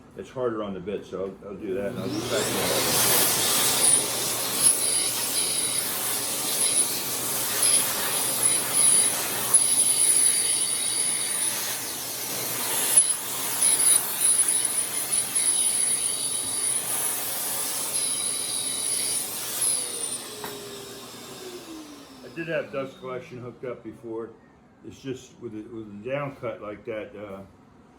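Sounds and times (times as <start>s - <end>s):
router cutting with high whine: 1.8s - 23.6s.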